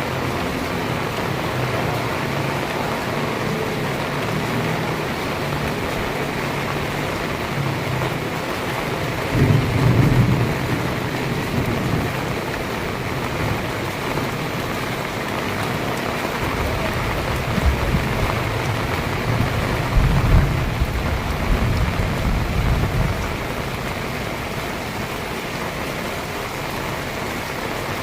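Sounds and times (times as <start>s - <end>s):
heavy rain pouring: 0.0s - 28.0s
low thunder rumbles: 8.9s - 14.7s, 16.4s - 24.7s.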